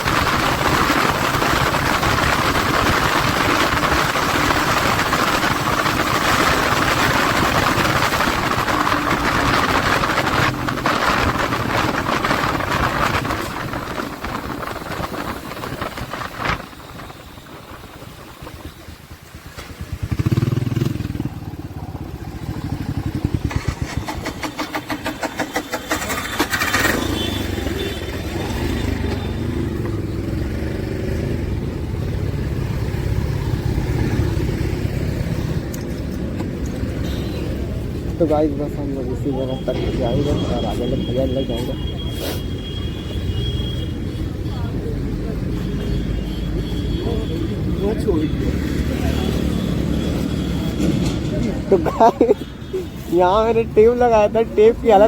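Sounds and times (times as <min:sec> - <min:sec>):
wind noise: 0:00.0 - 0:19.2
motorcycle engine running: 0:00.0 - 0:35.6.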